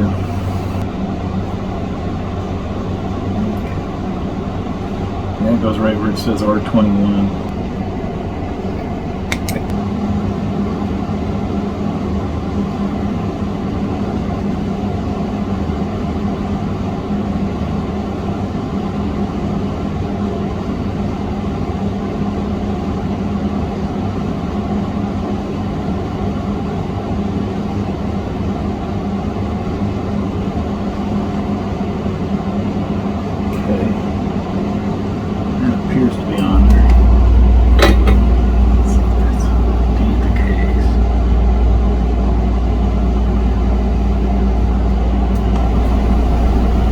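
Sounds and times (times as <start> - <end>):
electric fan motor whirring: 36.4 - 46.9.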